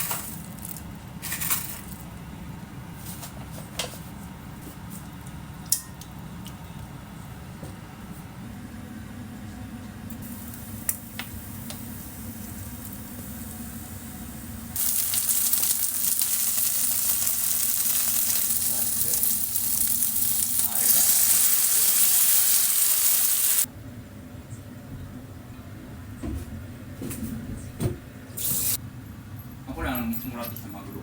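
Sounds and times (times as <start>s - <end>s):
food sizzling in a frying pan: 10.2s - 23.7s.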